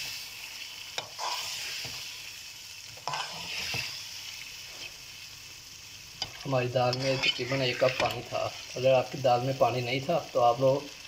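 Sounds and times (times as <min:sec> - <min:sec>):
food sizzling in a pot: 0:00.0 - 0:11.0
spatula scraping a metal pot: 0:03.0 - 0:04.0, 0:06.2 - 0:08.2.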